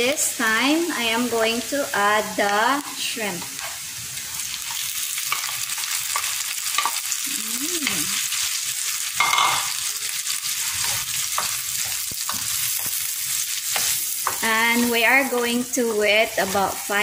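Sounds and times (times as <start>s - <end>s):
shrimp sizzling in butter: 0.0s - 17.0s.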